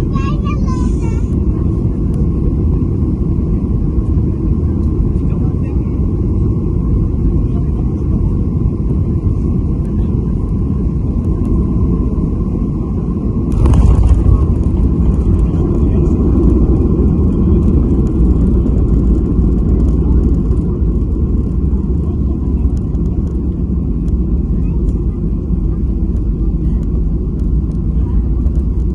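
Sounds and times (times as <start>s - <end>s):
airliner engine rumble: 0.0s - 28.9s
sudden burst of noise: 13.5s - 19.0s.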